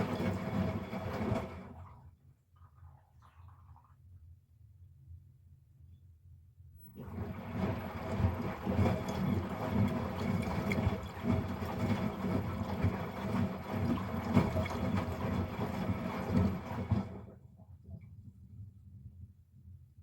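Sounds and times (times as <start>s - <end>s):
washing machine drum sloshing: 0.0s - 3.9s, 6.8s - 18.1s.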